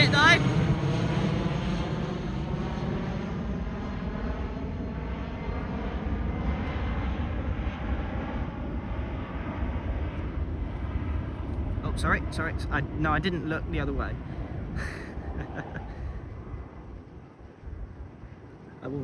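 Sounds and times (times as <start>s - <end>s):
jet airliner engine rush: 0.0s - 19.0s.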